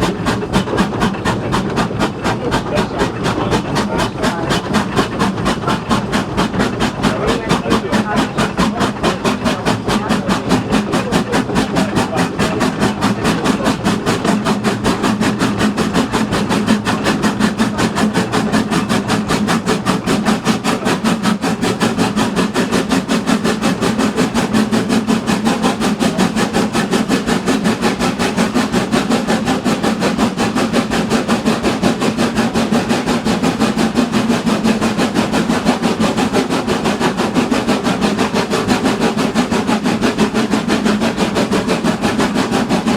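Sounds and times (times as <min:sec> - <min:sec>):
train running rhythmically: 0:00.0 - 0:42.9.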